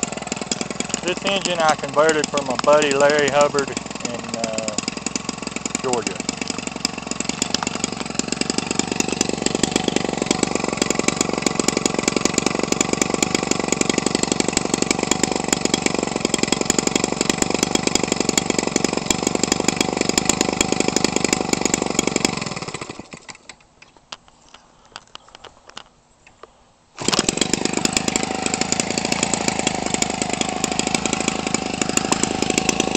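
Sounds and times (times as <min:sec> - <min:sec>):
two-stroke engine running: 0:00.0 - 0:23.6, 0:27.0 - 0:32.9.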